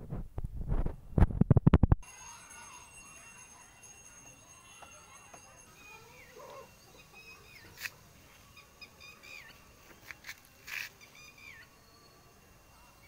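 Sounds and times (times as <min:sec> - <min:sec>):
small birds chirping: 0:05.8 - 0:12.1.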